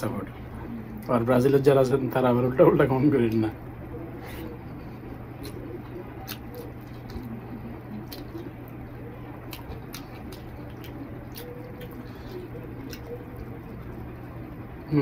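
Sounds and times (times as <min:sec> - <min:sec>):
steady low hum: 0:00.0 - 0:15.0
wet chewing and lip smacking: 0:04.3 - 0:14.6.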